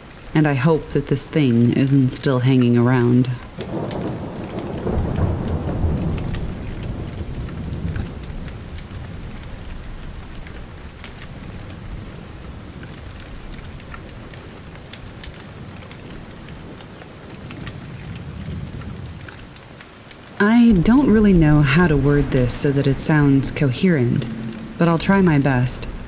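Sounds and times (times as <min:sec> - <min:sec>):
steady rain falling: 0:00.0 - 0:26.0
thunder rumbling: 0:03.6 - 0:10.4, 0:20.4 - 0:26.0.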